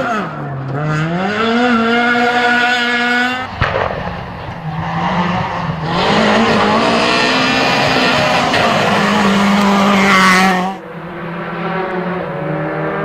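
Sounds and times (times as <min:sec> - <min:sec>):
rally car engine revving: 0:00.0 - 0:13.0
sharp crack: 0:03.4 - 0:10.3.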